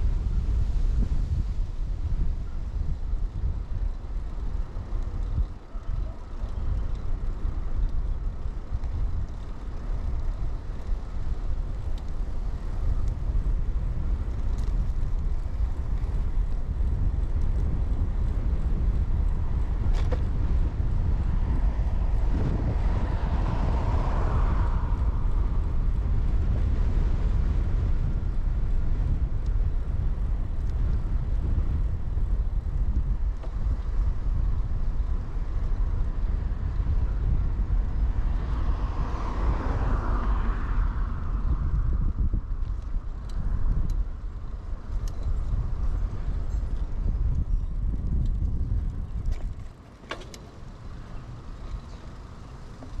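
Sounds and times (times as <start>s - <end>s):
bicycle rolling noise: 0.0s - 53.0s
wind rumble on microphone: 0.0s - 53.0s.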